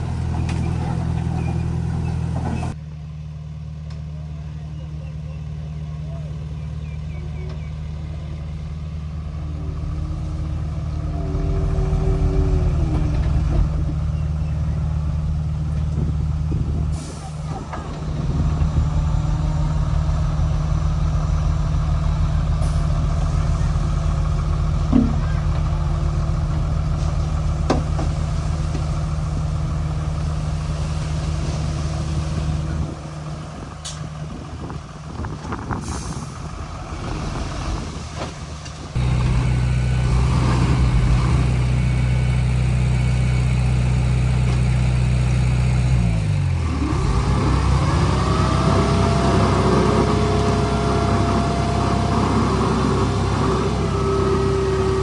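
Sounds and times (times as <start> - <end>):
bulldozer diesel engine: 0.0 - 55.0
rising whine: 9.2 - 16.9, 17.5 - 26.6.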